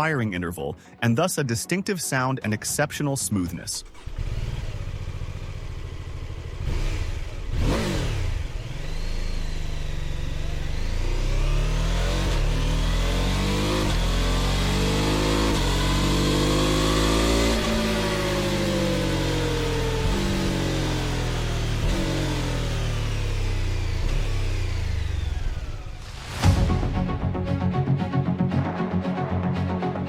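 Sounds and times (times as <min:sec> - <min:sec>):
motorcycle engine accelerating: 0:03.8 - 0:27.4.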